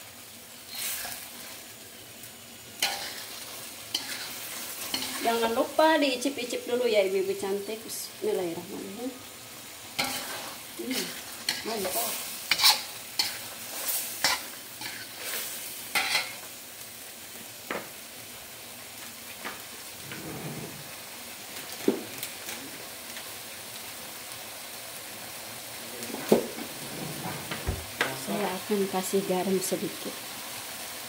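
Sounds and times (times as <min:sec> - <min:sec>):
food sizzling: 0:00.0 - 0:31.0
spatula scraping in a wok: 0:00.6 - 0:01.7, 0:02.8 - 0:05.9, 0:09.8 - 0:16.5, 0:20.0 - 0:21.1, 0:26.5 - 0:28.5.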